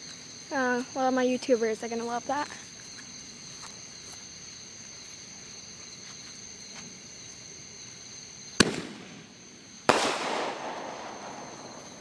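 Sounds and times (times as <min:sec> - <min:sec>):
crickets chirring: 0:00.0 - 0:12.0
firework bang: 0:08.6 - 0:12.0.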